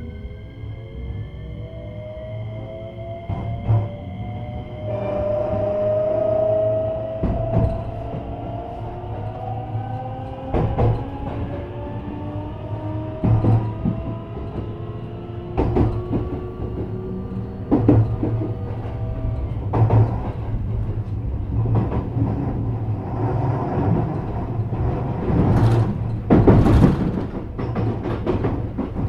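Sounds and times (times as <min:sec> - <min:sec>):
train traction motors whining: 0:00.0 - 0:29.0
wheels knocking over rail joints: 0:23.9 - 0:29.0.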